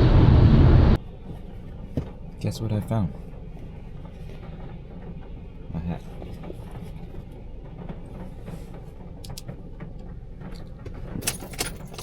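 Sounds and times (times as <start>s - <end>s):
low vehicle rumble: 0.0s - 12.0s
keys jangling: 11.2s - 12.0s.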